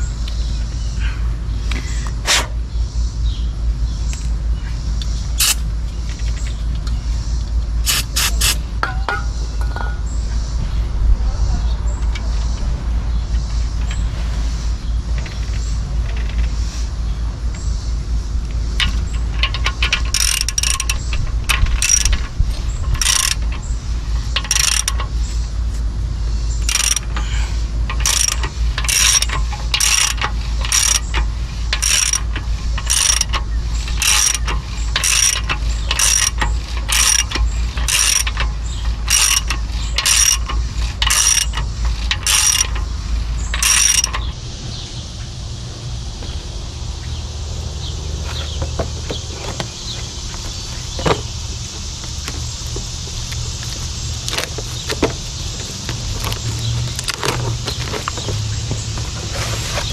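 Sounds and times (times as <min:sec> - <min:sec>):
steady low hum: 0:00.0 - 0:59.9
ratchet wrench clicking: 0:05.4 - 0:05.6, 0:07.8 - 0:08.6, 0:18.8 - 0:25.2, 0:26.6 - 0:44.3.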